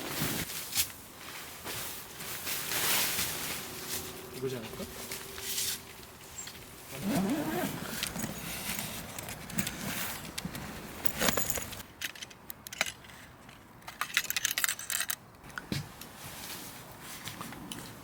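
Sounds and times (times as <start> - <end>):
objects clicking and rattling: 7.8 - 15.7.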